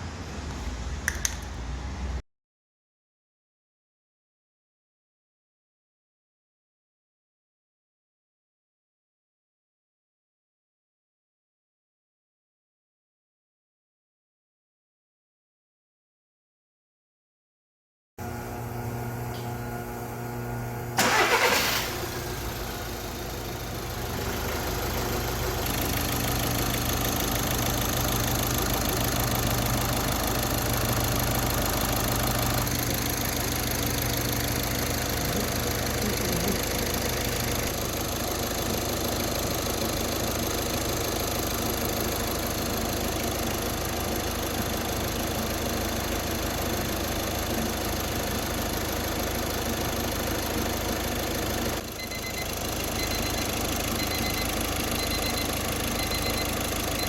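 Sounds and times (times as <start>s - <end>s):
car engine idling: 21.0s - 57.0s.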